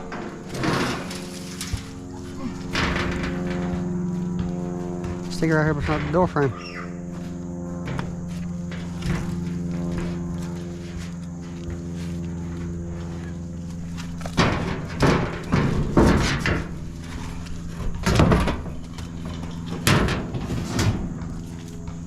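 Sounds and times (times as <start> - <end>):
scrap metal clanking: 0.0 - 4.1, 13.1 - 21.2
steady low hum: 0.0 - 22.0.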